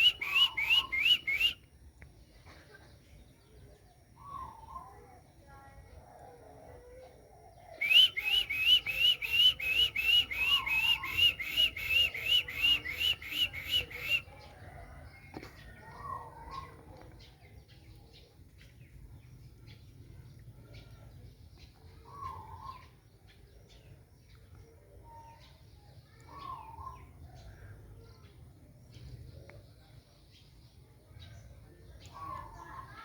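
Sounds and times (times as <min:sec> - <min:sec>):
bird whistled song notes: 0:00.0 - 0:01.7, 0:07.7 - 0:14.6
faint lower bird calls: 0:00.0 - 0:01.7, 0:02.4 - 0:05.2, 0:06.2 - 0:18.7, 0:21.7 - 0:30.5.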